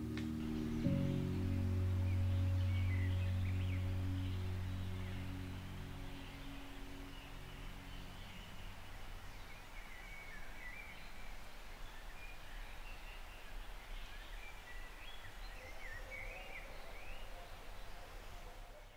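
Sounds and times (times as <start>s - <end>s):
low rumble: 0.0s - 9.3s.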